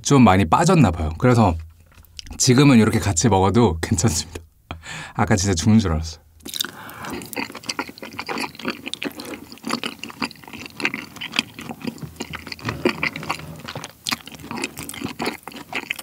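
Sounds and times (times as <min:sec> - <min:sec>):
sticky chewing mouth clicks: 0:06.4 - 0:16.0.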